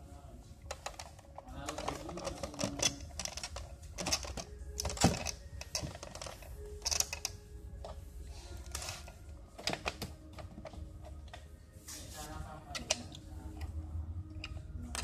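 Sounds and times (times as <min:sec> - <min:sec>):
hands handling batteries: 0:00.7 - 0:08.0.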